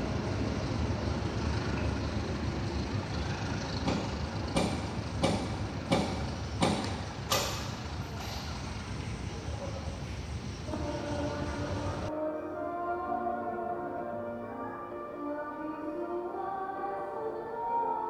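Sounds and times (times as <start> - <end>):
train rumbling: 0.0 - 12.1
sharp metallic clanks: 3.8 - 8.5.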